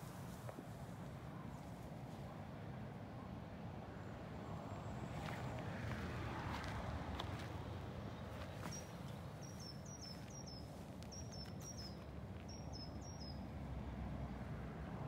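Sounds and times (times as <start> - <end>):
small bird chirping: 8.4 - 13.4.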